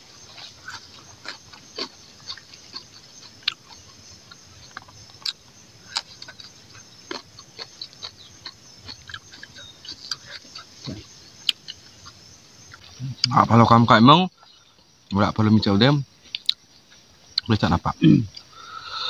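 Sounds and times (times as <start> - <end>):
man chewing and lip smacking: 0.2 - 13.4, 16.3 - 17.5.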